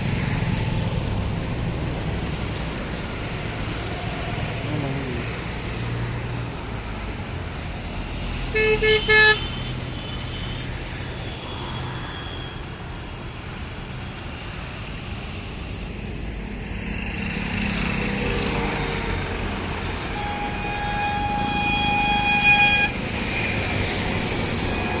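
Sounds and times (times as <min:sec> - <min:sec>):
road traffic: 0:00.0 - 0:25.0
long vehicle horn blast: 0:08.5 - 0:10.6, 0:19.7 - 0:25.0.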